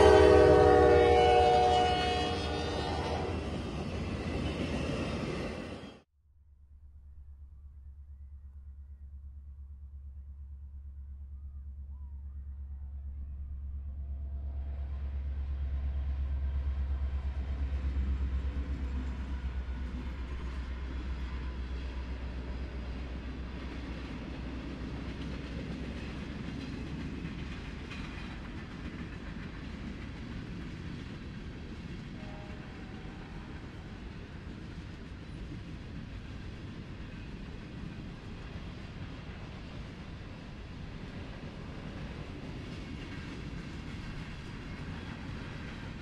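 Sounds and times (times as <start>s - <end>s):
locomotive engine rumble: 6.9s - 46.0s
train wheels clickety-clack: 14.9s - 46.0s.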